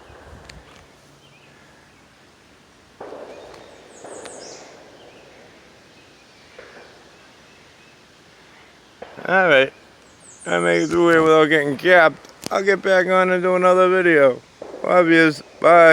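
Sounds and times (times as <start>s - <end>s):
distant gunshots: 3.0s - 7.4s, 9.0s - 9.6s, 14.6s - 15.9s
gunshot echo through woods: 3.0s - 7.9s, 9.0s - 9.8s, 14.5s - 15.9s.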